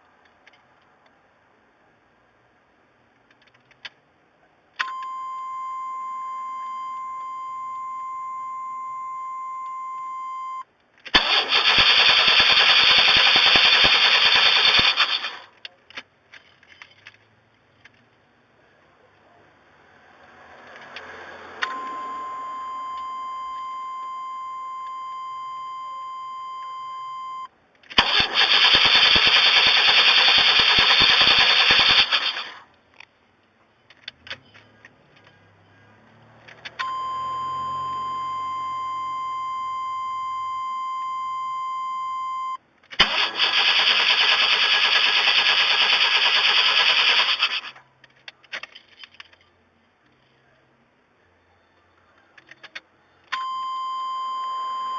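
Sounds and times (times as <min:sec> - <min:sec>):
starter motor cranking engine: 0:11.2 - 0:15.5, 0:28.0 - 0:32.6, 0:43.0 - 0:47.8
electronic warning tone: 0:21.6 - 0:27.5, 0:36.8 - 0:42.6.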